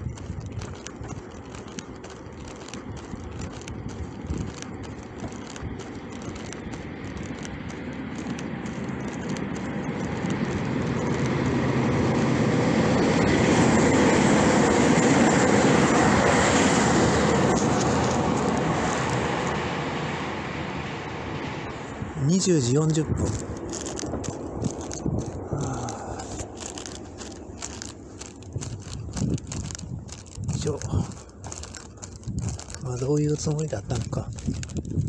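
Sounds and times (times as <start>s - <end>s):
train passing by: 10.5s - 28.9s.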